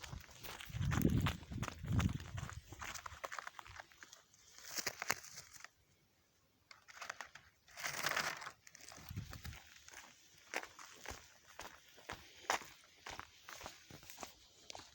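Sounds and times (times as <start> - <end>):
rustling and crunching: 0.0 - 5.9, 6.6 - 11.6.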